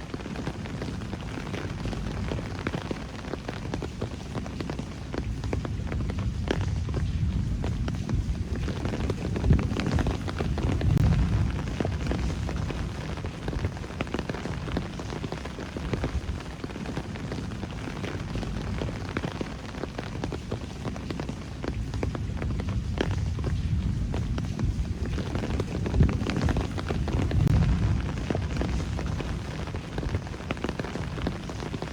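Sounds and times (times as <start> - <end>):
close raindrop hits: 0.0 - 31.9
steady rain falling: 0.0 - 31.9
low rumble: 5.3 - 15.2, 21.7 - 31.8.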